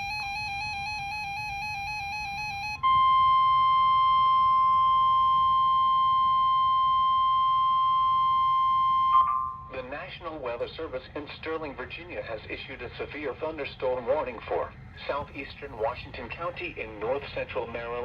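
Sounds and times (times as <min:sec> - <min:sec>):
steady high alert tone: 0:00.0 - 0:09.8
warbling electronic tone: 0:00.0 - 0:09.8.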